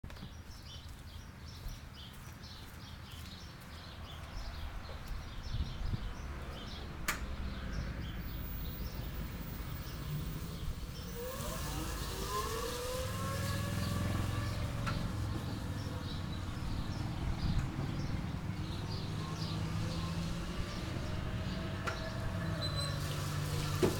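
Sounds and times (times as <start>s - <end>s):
birds chirping: 0.1s - 23.9s
electric motor whining: 8.4s - 17.1s.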